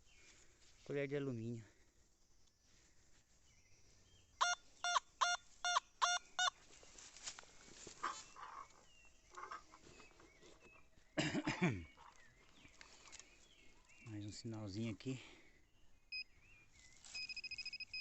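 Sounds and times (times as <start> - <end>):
bird honking calls: 8.0 - 10.0.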